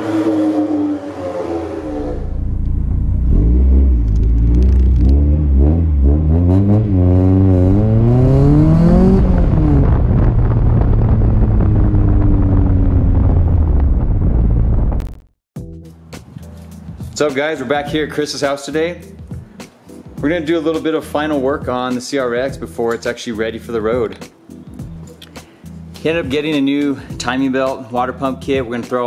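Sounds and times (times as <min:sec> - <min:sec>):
car engine revving: 0:00.0 - 0:15.2.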